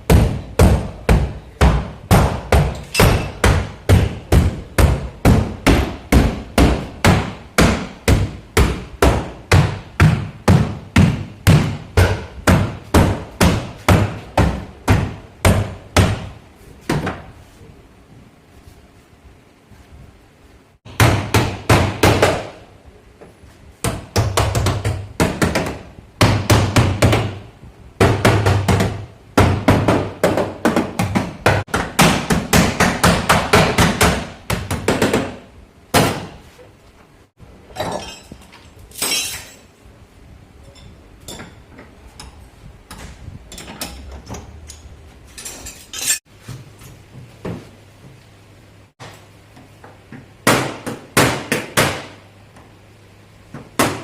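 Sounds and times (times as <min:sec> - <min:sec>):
hammer striking sheet metal: 0:00.1 - 0:16.3.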